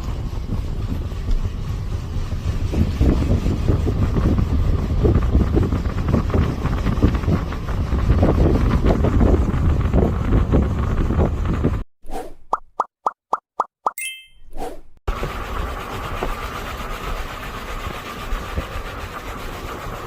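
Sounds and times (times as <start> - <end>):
road rumble: 0.0 - 11.8
wind gusting on microphone: 0.0 - 11.8.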